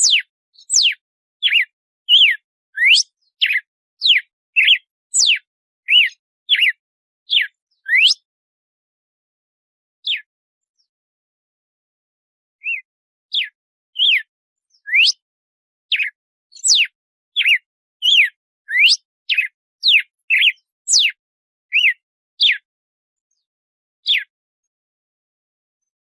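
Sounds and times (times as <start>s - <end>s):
bird singing whistled notes: 0.0s - 8.3s, 10.0s - 10.9s, 12.6s - 15.3s, 15.9s - 22.7s, 24.0s - 24.3s.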